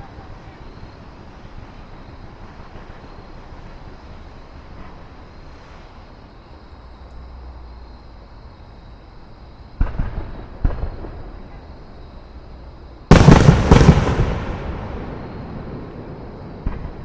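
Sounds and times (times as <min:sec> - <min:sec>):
fireworks exploding: 0:13.1 - 0:17.0.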